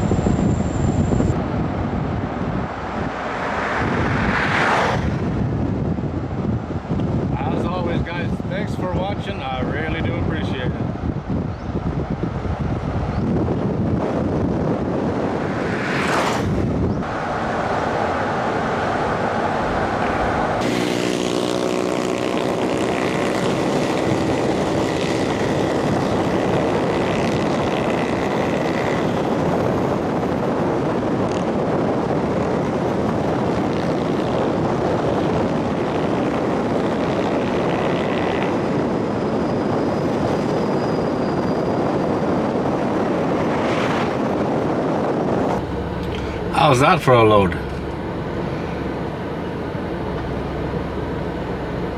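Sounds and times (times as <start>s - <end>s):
vehicle road and wind noise: 0.0s - 51.9s
humming pitched tone: 45.5s - 51.9s.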